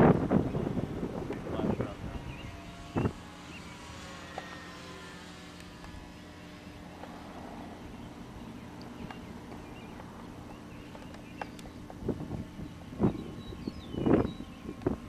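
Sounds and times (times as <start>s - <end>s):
wind buffeting microphone: 0.0s - 4.0s, 11.5s - 15.0s.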